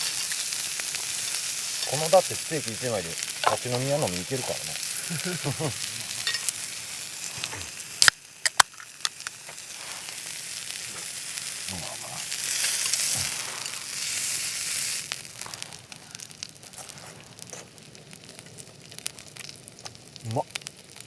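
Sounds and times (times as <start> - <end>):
steak sizzling on a griddle: 0.0 - 21.0
sharp clicks: 8.0 - 9.4.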